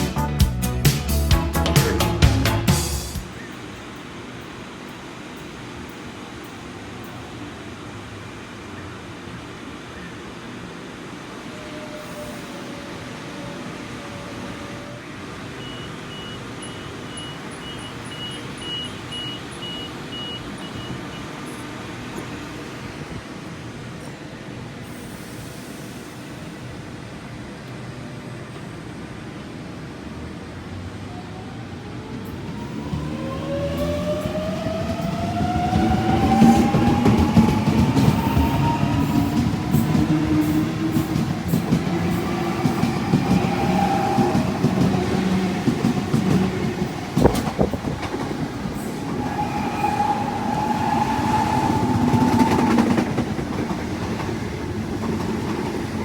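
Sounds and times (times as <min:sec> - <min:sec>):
train whine: 0:00.0 - 0:56.0
high beeps: 0:15.6 - 0:21.3.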